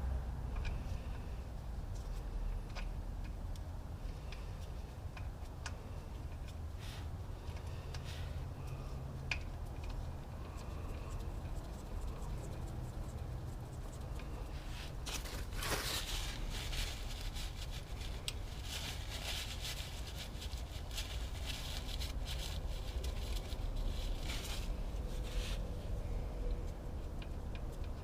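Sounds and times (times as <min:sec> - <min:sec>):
steady low hum: 0:00.0 - 0:28.0
tools scraping and rustling: 0:14.2 - 0:25.7.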